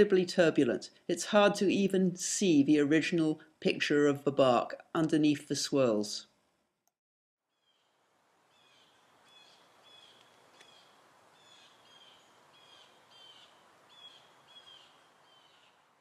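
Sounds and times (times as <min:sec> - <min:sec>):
bird chirping faintly: 0:07.5 - 0:16.0
steady outdoor hiss: 0:07.5 - 0:16.0.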